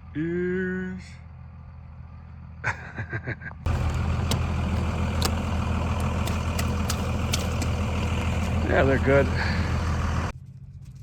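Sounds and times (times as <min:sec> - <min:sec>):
motor engine rumbling: 0:03.7 - 0:10.4.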